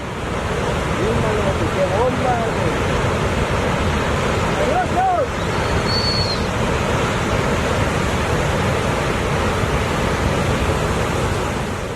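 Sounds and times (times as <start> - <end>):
ocean surf washing on shore: 0.0 - 11.9.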